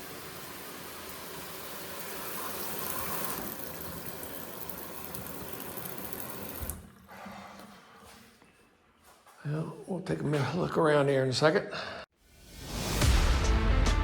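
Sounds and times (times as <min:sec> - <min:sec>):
water rushing in plumbing: 0:00.0 - 0:08.2.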